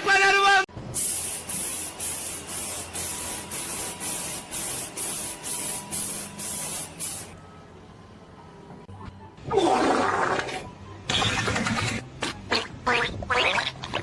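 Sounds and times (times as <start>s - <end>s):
hissing spray in pulses: 1.0s - 7.3s.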